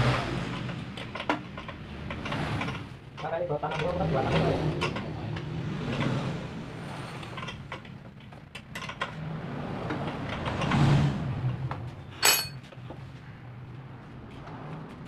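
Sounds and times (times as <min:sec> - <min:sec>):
sharp metallic clatter: 0:12.2 - 0:12.6.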